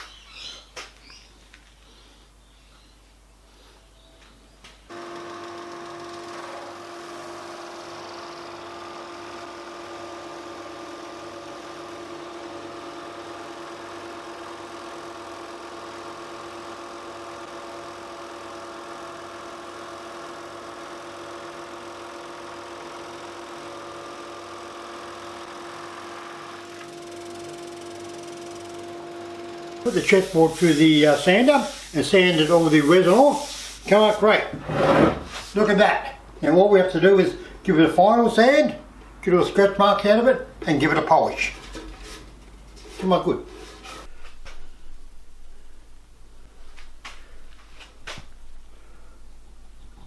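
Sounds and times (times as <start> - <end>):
sander humming: 4.9 - 33.8.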